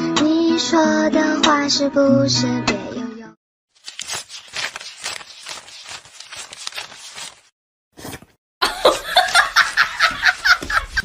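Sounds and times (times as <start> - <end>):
person laughing hard: 8.6 - 11.0.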